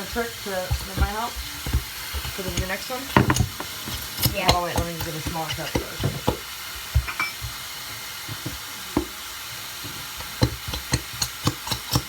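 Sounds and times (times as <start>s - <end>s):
food sizzling in a pan: 0.0s - 12.0s
knocks of utensils handled: 7.0s - 7.6s.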